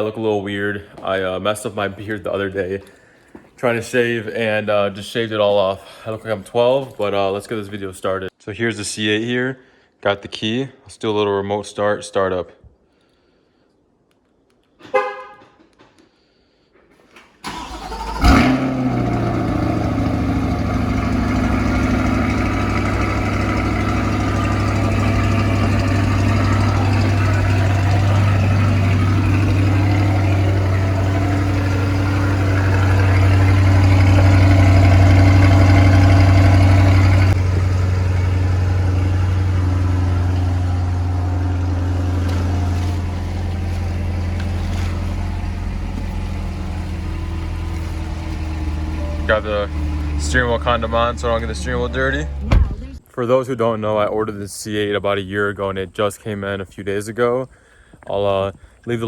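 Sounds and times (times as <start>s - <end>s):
car engine cranking: 17.4s - 53.0s
car engine idling: 17.5s - 53.0s.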